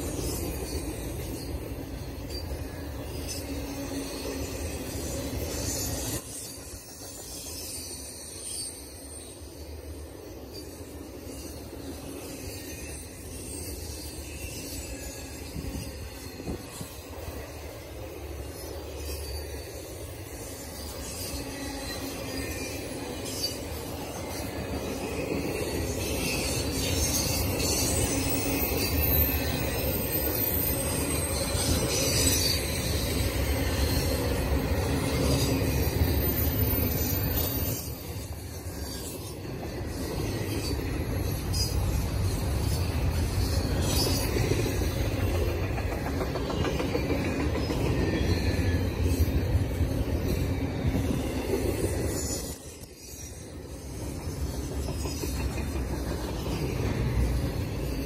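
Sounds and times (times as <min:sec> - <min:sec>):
freight train wheels rumbling: 0:00.0 - 0:58.0
high-pitched wheel squeal: 0:20.4 - 0:45.1.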